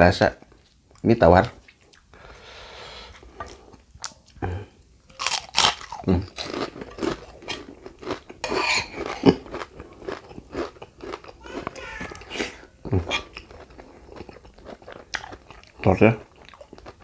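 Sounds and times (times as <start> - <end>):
chewing crunchy cracker: 5.1 - 17.0.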